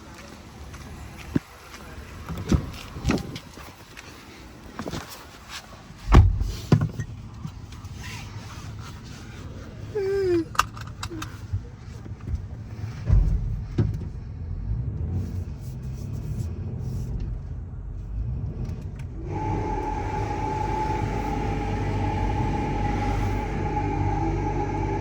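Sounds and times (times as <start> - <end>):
low rumble: 12.8 - 25.0
car wash machinery whine: 19.0 - 25.0
rushing noise: 19.2 - 25.0.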